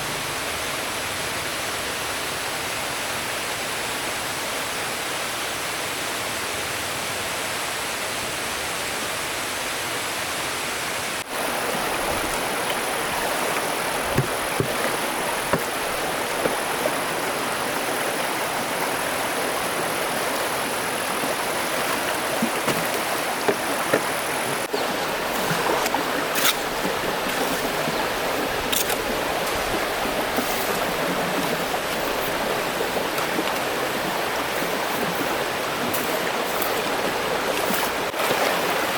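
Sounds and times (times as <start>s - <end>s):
stream water rushing: 0.0s - 38.9s
light knocks or splashes: 12.0s - 16.9s.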